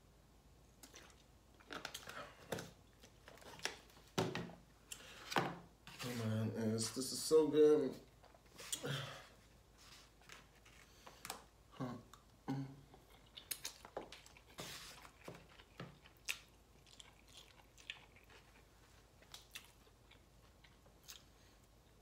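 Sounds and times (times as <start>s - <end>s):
person chewing food: 0.8s - 4.0s, 10.1s - 22.0s.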